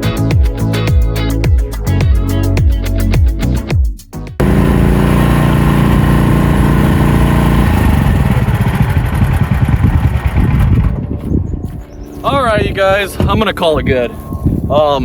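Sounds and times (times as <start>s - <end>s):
electronic music with beat: 0.0s - 4.4s
skid steer engine running: 4.4s - 11.1s.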